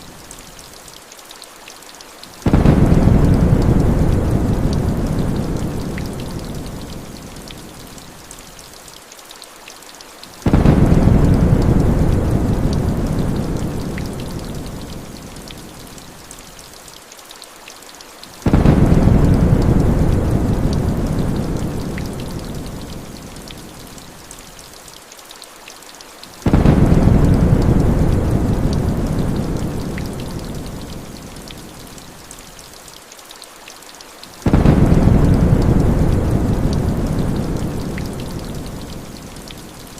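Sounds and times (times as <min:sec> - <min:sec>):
heavy rain hissing: 0:02.2 - 0:08.8, 0:10.2 - 0:16.8, 0:18.0 - 0:25.0, 0:26.1 - 0:33.0, 0:34.1 - 0:39.9
thunder rolling: 0:02.5 - 0:05.9, 0:10.5 - 0:13.8, 0:18.5 - 0:21.8, 0:26.5 - 0:29.9, 0:34.5 - 0:38.2.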